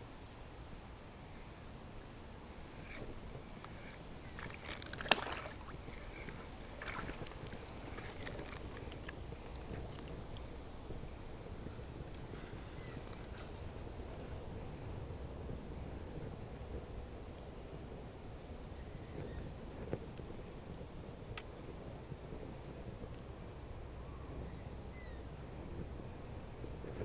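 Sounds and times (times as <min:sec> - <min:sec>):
insects droning: 0:00.0 - 0:27.0
water sloshing: 0:03.6 - 0:10.9.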